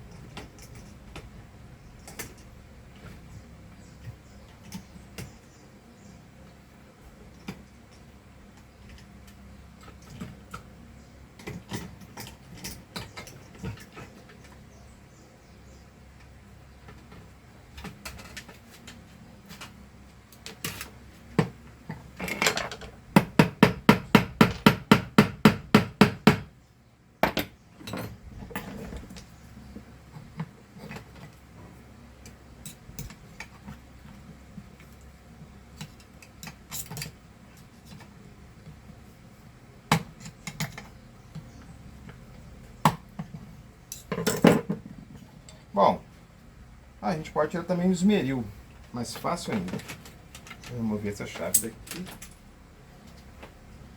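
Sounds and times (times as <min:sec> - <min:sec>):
hand tools clinking on metal: 0:49.1 - 0:52.4.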